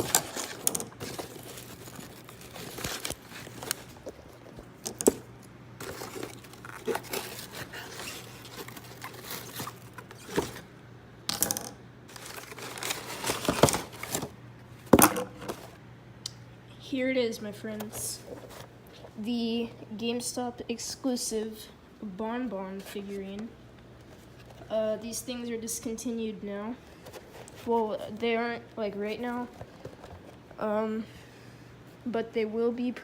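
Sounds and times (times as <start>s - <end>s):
packaging rustling and clicking: 0.0s - 10.7s, 12.1s - 15.8s.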